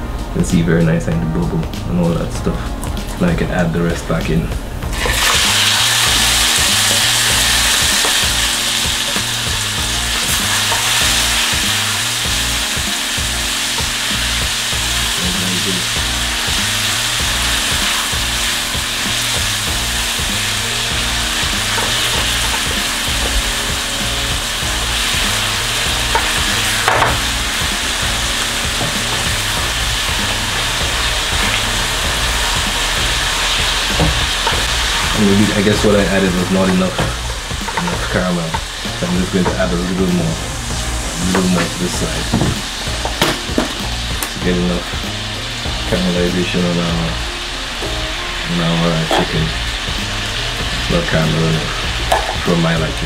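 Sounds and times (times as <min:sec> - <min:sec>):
food sizzling in a frying pan: 0:04.8 - 0:53.0.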